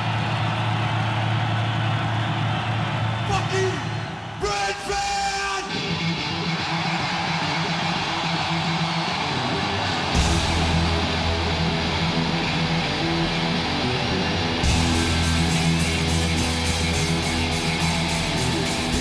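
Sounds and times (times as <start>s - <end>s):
distorted electric guitar: 5.6s - 19.0s
bass guitar: 9.3s - 19.0s.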